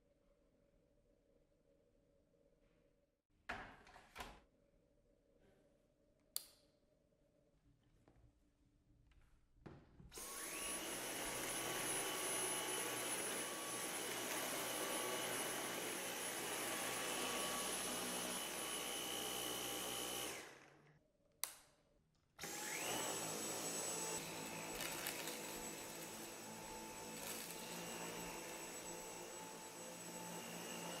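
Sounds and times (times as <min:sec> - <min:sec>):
vacuum motor whining: 0:10.2 - 0:20.7, 0:22.4 - 0:31.0.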